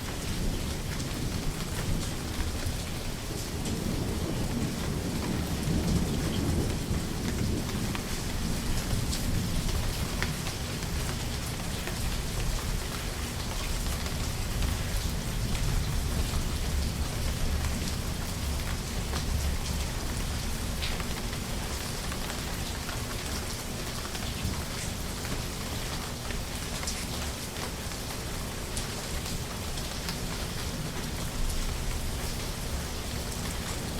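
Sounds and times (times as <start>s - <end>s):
rain falling: 0.0s - 33.9s
raindrops ticking: 0.1s - 33.9s
distant thunder rumbling: 1.1s - 11.1s.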